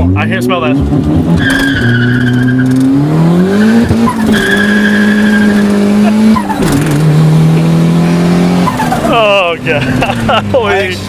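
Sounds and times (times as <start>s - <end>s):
car engine revving hard: 0.0s - 11.0s
tires squealing: 1.0s - 11.0s.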